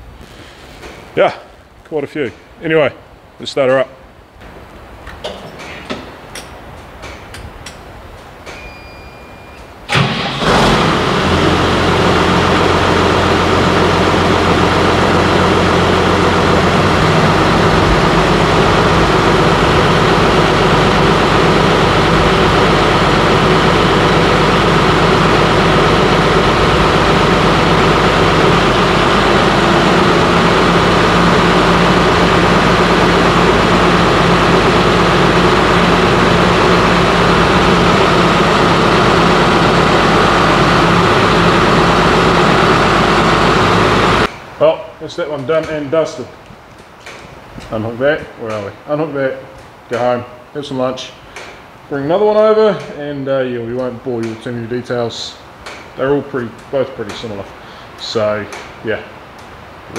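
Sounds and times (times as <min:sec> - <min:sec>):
diesel engine starting and idling: 0:09.7 - 0:46.2.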